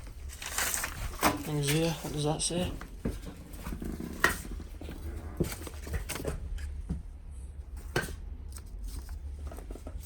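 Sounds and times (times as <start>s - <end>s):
paper rustling: 0.0s - 4.6s, 8.5s - 10.0s.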